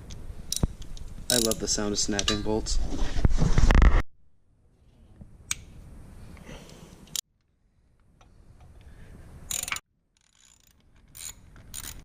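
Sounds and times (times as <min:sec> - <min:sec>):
wrench and bolts clinking: 0:01.3 - 0:02.5, 0:09.5 - 0:12.0.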